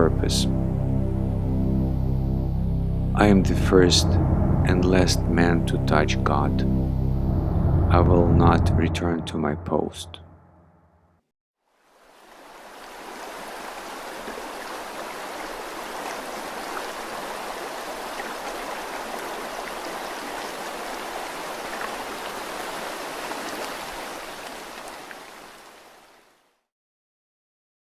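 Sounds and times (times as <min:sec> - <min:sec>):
steady rushing noise: 0:00.6 - 0:10.5.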